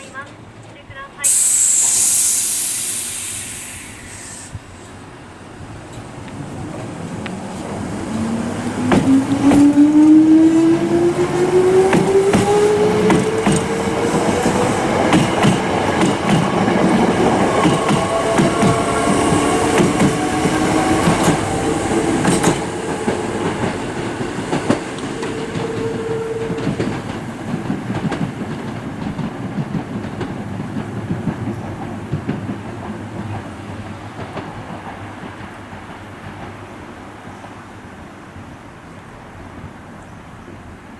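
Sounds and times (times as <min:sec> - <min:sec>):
electric train motor whine: 0:01.2 - 0:04.6, 0:17.0 - 0:27.2
wheels clacking over rail joints: 0:05.7 - 0:37.8.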